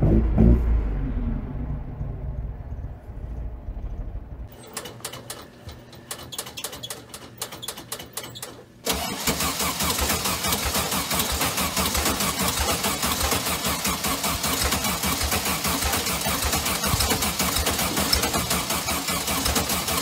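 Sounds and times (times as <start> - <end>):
low rumble: 0.0 - 4.5
car engine cranking: 6.1 - 20.0
car engine running roughly: 8.9 - 20.0.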